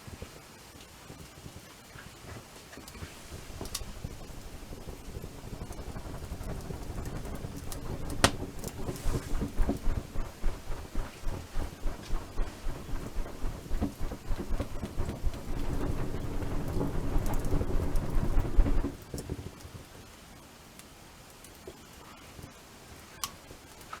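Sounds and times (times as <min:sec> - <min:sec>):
campfire crackling: 0:02.8 - 0:19.3
fire popping: 0:02.8 - 0:19.3
low fire rumble: 0:02.8 - 0:19.6.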